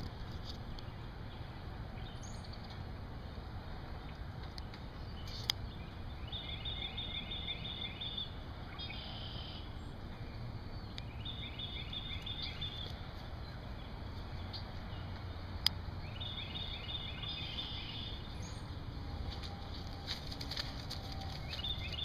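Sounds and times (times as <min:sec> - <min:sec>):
steady low rumble: 0:00.0 - 0:22.0
bird chirping: 0:05.0 - 0:18.8, 0:21.0 - 0:22.0.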